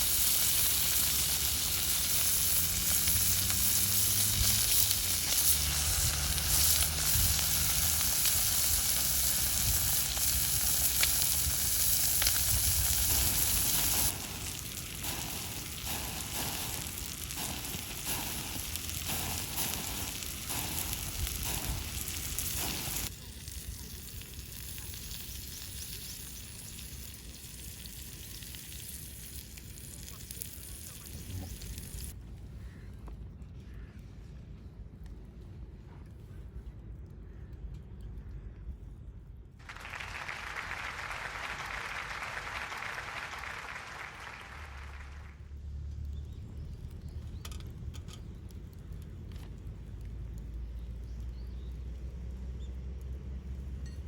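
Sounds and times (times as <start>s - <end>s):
steak sizzling over wood fire: 0.0s - 32.2s
fire crackles: 0.0s - 32.8s, 36.8s - 54.0s.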